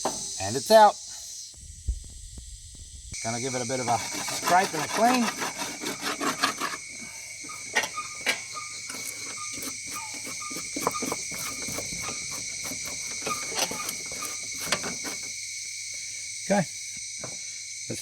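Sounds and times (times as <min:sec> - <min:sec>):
insects chorus: 0:00.0 - 0:18.0
scrapes and taps on metal: 0:07.4 - 0:15.4.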